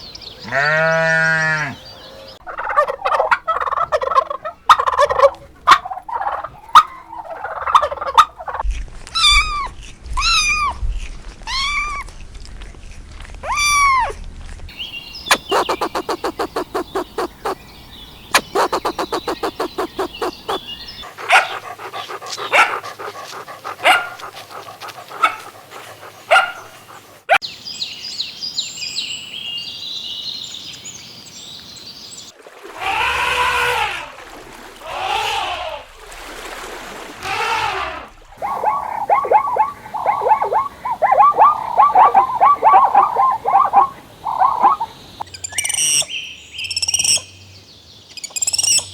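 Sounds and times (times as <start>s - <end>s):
animal calls: 2.4s - 8.6s, 15.3s - 17.7s, 18.3s - 27.4s, 37.2s - 46.1s
high chirping: 14.8s - 24.3s, 38.4s - 47.3s, 48.1s - 48.9s
short pulsed calls: 15.2s - 17.7s, 18.3s - 24.0s, 38.4s - 47.2s
long rising and falling call: 15.3s - 17.6s, 18.3s - 22.6s, 38.4s - 44.9s.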